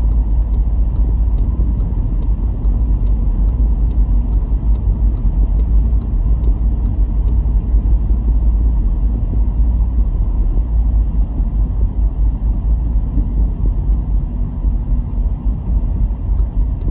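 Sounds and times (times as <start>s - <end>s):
car road and engine rumble: 0.0s - 16.9s
faint ticks: 0.1s - 7.4s.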